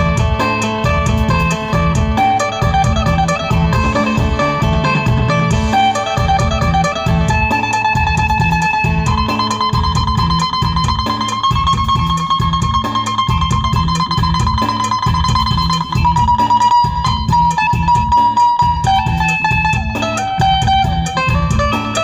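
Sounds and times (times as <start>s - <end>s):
plucked lute melody: 0.0s - 22.0s
steady low beat: 0.0s - 22.0s.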